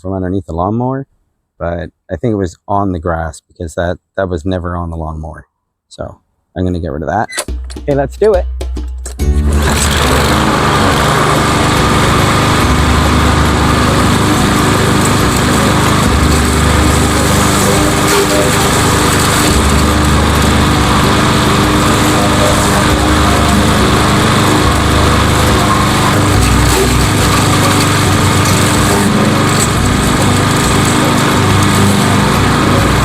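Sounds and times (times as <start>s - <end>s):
lawn mower engine running: 9.2s - 33.0s.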